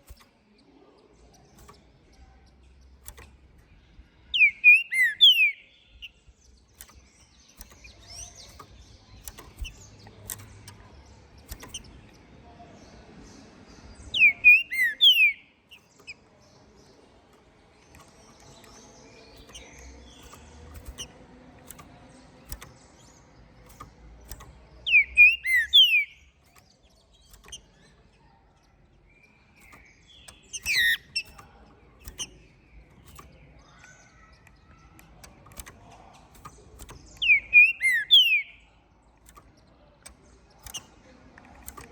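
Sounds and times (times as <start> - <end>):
scattered clicks: 0.0 - 12.4, 13.9 - 41.9
bird singing whistled phrases: 4.3 - 5.7, 14.1 - 15.4, 24.8 - 26.2, 37.2 - 38.7.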